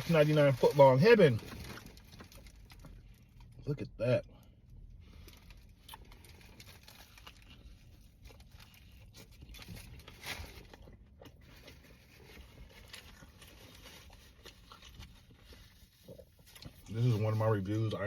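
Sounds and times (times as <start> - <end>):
person chewing sandwich: 4.7 - 16.9.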